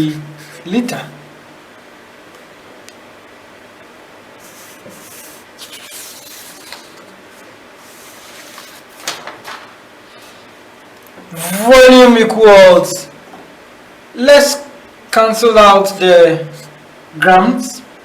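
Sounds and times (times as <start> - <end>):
low room hiss: 0.0 - 18.0
soft scrapes: 4.4 - 9.0
faint rubbing and rustling: 4.4 - 10.6.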